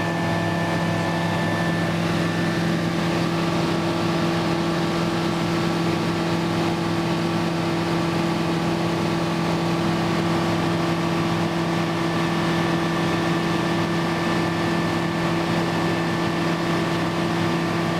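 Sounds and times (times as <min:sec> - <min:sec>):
aircraft engine droning: 0:00.0 - 0:17.9.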